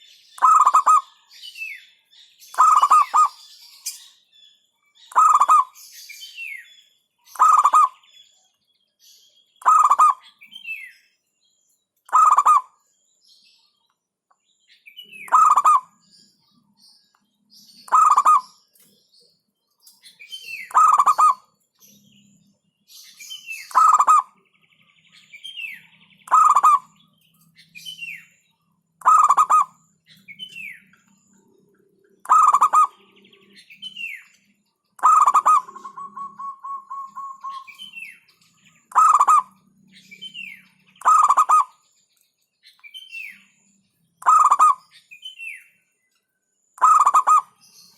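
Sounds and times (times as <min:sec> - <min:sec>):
dove calling: 0:00.4 - 0:01.2, 0:02.5 - 0:04.1, 0:05.0 - 0:06.5, 0:07.3 - 0:08.1, 0:09.6 - 0:10.8, 0:12.1 - 0:12.8, 0:15.0 - 0:16.1, 0:17.7 - 0:18.9, 0:20.1 - 0:21.6, 0:23.3 - 0:24.5, 0:25.2 - 0:28.4, 0:29.0 - 0:41.8, 0:44.2 - 0:45.0, 0:46.8 - 0:47.9
faint high chirps: 0:02.4 - 0:47.9.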